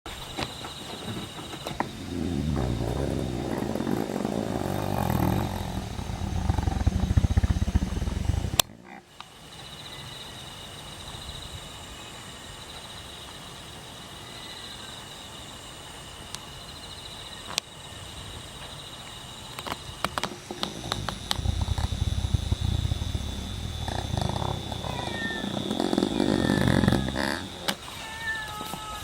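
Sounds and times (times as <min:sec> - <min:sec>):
insects chirring: 0:00.1 - 0:29.0
wind buffeting microphone: 0:01.7 - 0:08.7, 0:20.7 - 0:27.7
wind rumble: 0:01.7 - 0:08.7, 0:20.7 - 0:27.7
sharp clicks: 0:19.5 - 0:27.8.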